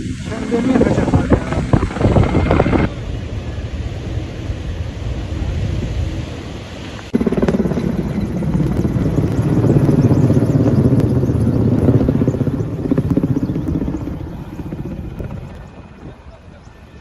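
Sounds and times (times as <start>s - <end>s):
helicopter rotor chopping: 0.0s - 4.5s, 7.0s - 17.0s.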